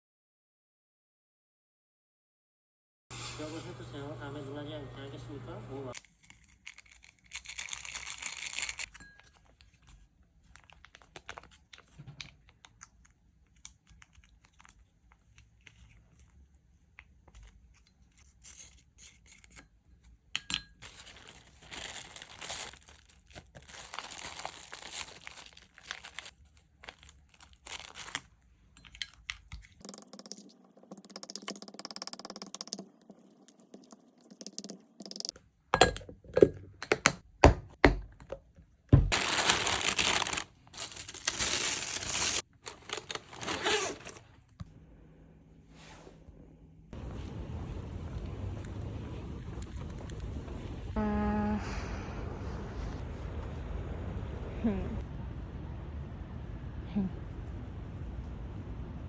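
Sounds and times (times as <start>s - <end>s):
packaging crinkling and tearing: 5.9s - 16.3s, 20.8s - 28.4s, 39.1s - 44.5s.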